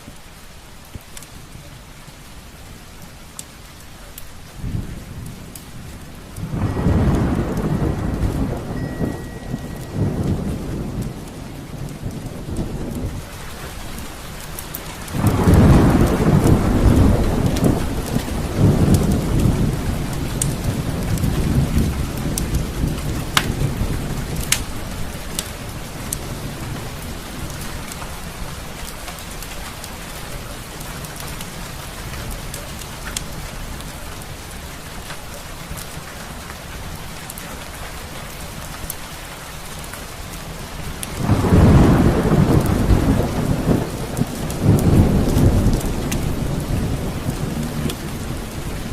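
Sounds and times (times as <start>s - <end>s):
steady rain: 0.0s - 48.9s
rolling thunder: 4.5s - 28.9s, 40.8s - 48.9s
sharp pops and crackles: 20.4s - 23.6s, 24.4s - 26.2s.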